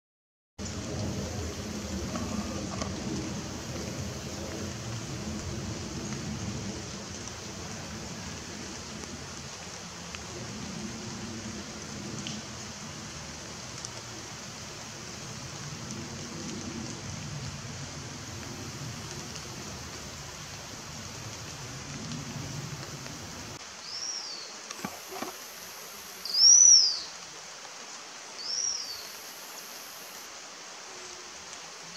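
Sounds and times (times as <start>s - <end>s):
low rumble: 0.6s - 6.7s
steady background hiss: 0.6s - 31.9s
bird whistled calls: 23.8s - 24.4s, 26.2s - 27.1s, 28.4s - 29.1s.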